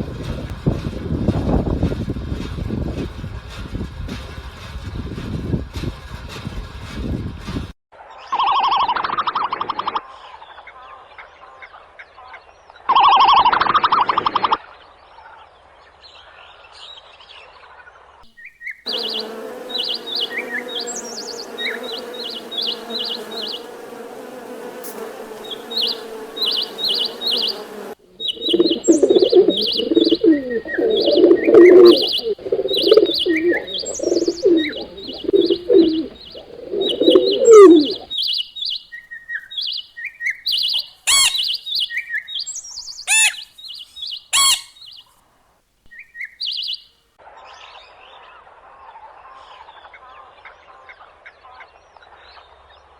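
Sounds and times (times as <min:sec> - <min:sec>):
birds chirping: 0:18.4 - 0:45.1
lower calls of larger birds: 0:18.9 - 0:38.7.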